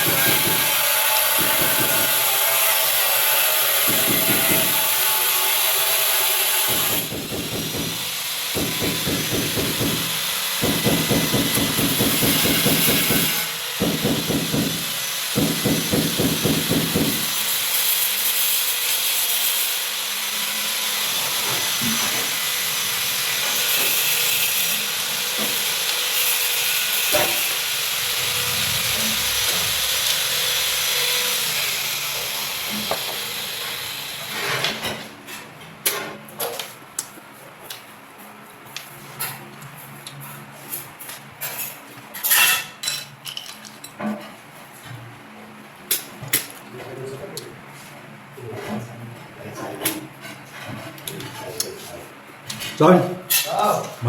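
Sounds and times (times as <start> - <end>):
pot steaming hiss: 12.0 - 34.6
pulsing rumble: 28.2 - 30.1
utensils clinking against pot: 41.4 - 44.4, 53.3 - 54.0.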